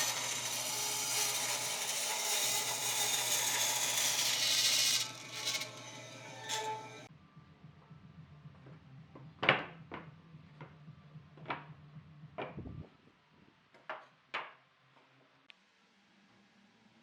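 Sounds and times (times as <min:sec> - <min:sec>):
wooden knocks and clunks: 0:12.4 - 0:12.8.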